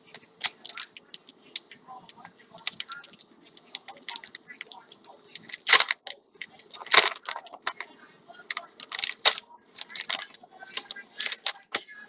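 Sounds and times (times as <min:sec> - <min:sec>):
packaging crinkling and rustling: 0:00.1 - 0:01.3, 0:02.6 - 0:03.2, 0:03.8 - 0:07.8, 0:08.5 - 0:11.8.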